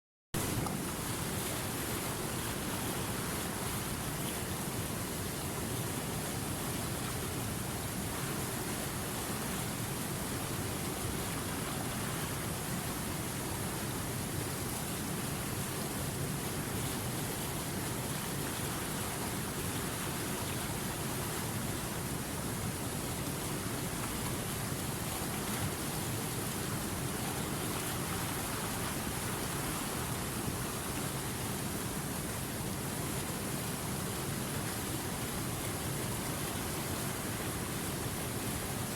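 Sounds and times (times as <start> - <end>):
river water rushing over rocks: 0.4 - 38.9.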